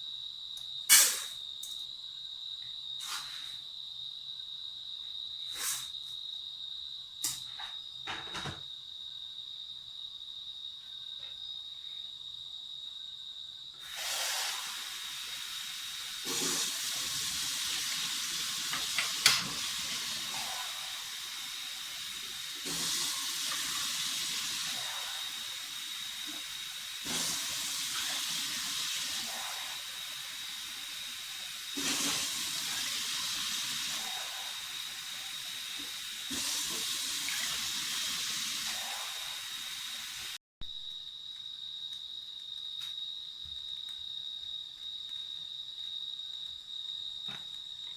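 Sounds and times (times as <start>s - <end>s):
porridge pot steaming hiss: 0.9s - 1.4s, 3.0s - 3.6s, 5.5s - 6.1s, 13.8s - 40.4s.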